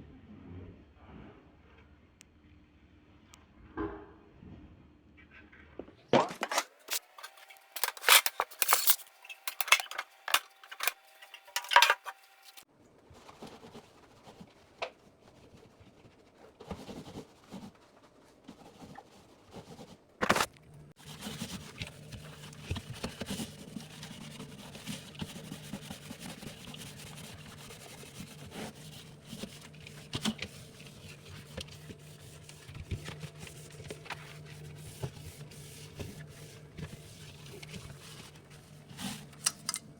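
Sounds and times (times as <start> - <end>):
objects clattering and scraping: 5.3 - 13.8, 20.2 - 25.4.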